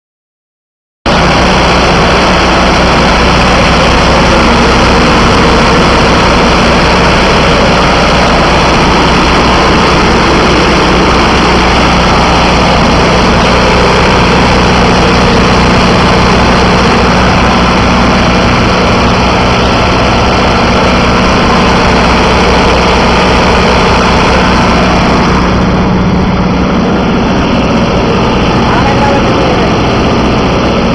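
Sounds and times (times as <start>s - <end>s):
diesel engine idling: 1.1s - 30.9s.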